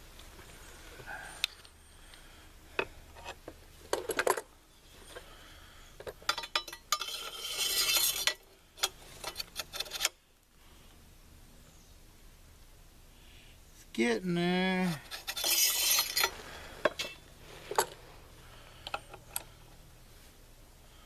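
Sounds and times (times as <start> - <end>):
rattling metal scrape: 6.3 - 10.2, 15.0 - 18.0.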